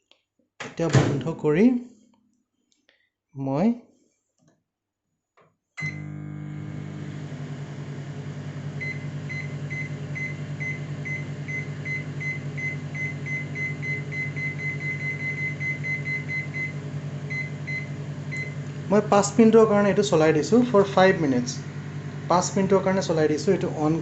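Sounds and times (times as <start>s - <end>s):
microwave humming: 5.8s - 24.0s.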